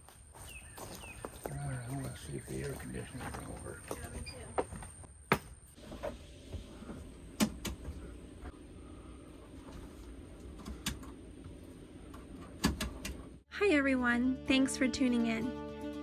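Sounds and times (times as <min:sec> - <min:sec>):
steady low hum: 0:05.8 - 0:13.4
sharp clicks and knocks: 0:07.4 - 0:08.0, 0:12.1 - 0:13.3.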